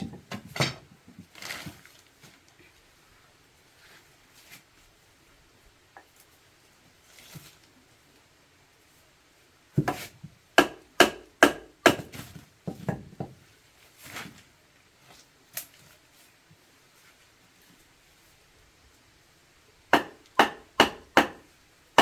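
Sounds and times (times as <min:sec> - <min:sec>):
blade chopping wood: 0:09.8 - 0:12.3, 0:20.0 - 0:21.4.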